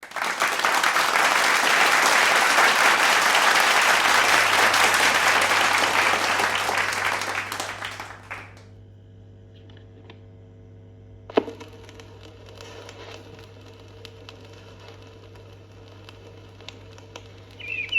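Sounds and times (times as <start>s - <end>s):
dense crackling noise: 0.0s - 8.7s, 11.3s - 17.9s.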